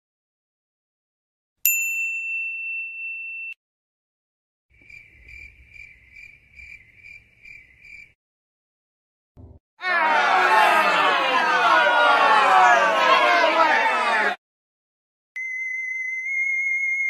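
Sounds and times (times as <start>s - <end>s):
high ding-like tone: 1.7s - 3.6s
crickets chirping: 4.7s - 8.2s.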